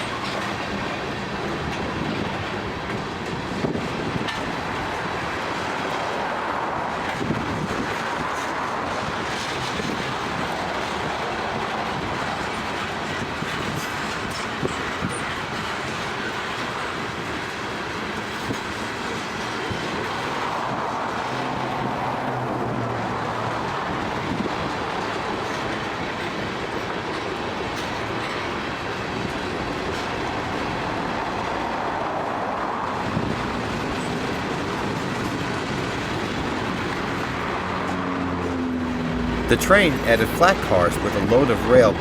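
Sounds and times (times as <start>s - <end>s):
freight train rolling past: 0.0s - 42.0s
steel wheels on rails: 0.0s - 42.0s.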